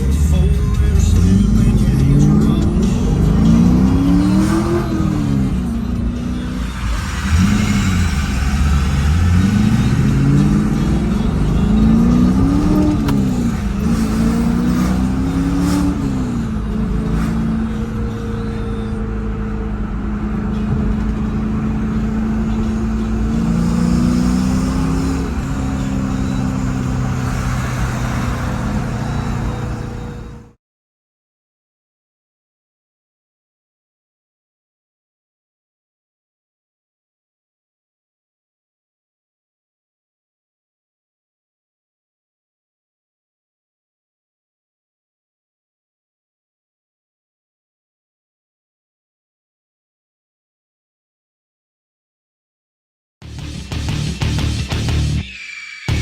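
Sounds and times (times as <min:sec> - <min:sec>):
car engine revving: 0:00.0 - 0:30.6, 0:53.2 - 0:55.2.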